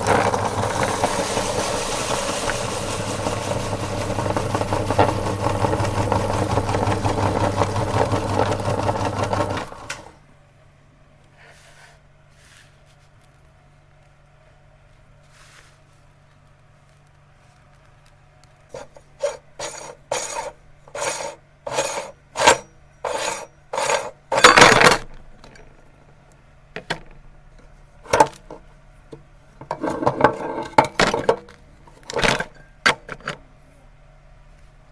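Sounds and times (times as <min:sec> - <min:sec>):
meat grinder crunching cookies: 0:00.0 - 0:10.2, 0:16.4 - 0:25.1.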